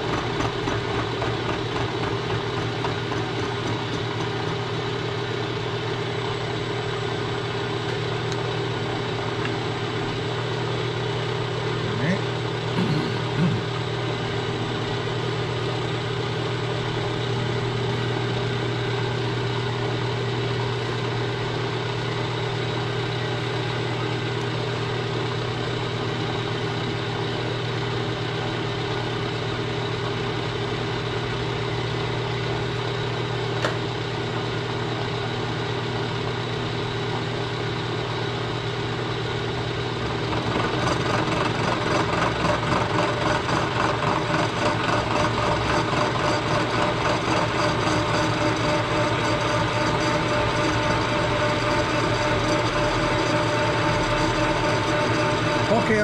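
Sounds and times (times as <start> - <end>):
machine tool humming: 0.0 - 7.6, 39.4 - 56.0.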